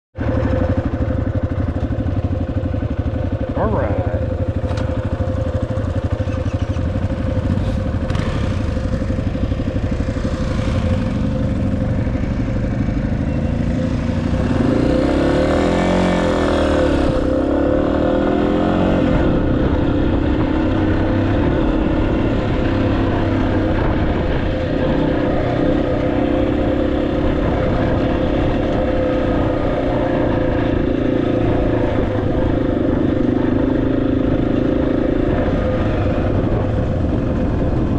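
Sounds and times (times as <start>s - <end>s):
motorcycle engine running at speed: 0.1s - 37.9s
road and wind noise: 0.1s - 37.9s.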